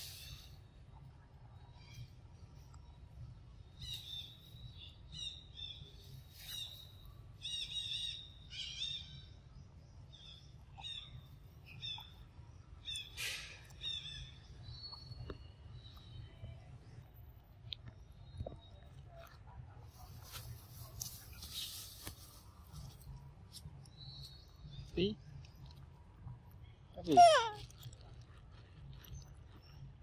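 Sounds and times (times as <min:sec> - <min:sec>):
birds chirping: 0:26.6 - 0:27.7.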